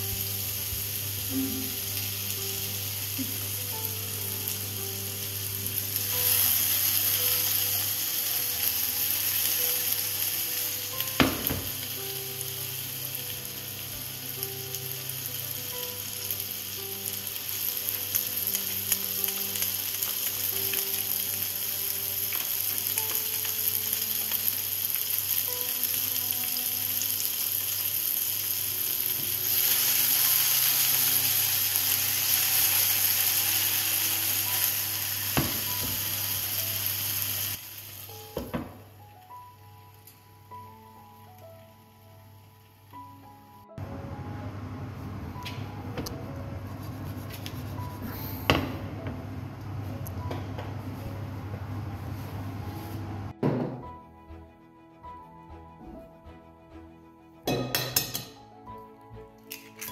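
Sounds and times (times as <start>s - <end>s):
potatoes sizzling in oil: 0.0s - 38.4s.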